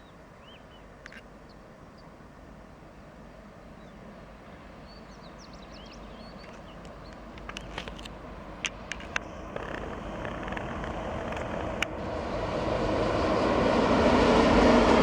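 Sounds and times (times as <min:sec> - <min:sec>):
bird chirps: 0:00.0 - 0:02.1, 0:04.8 - 0:07.7
train rumble: 0:01.9 - 0:15.0
sharp clicks: 0:06.4 - 0:12.0.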